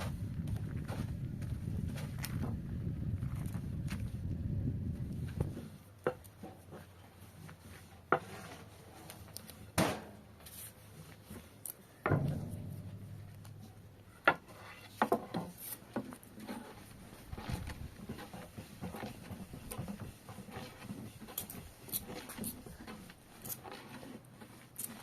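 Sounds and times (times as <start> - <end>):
objects knocking and clattering: 12.0 - 16.1.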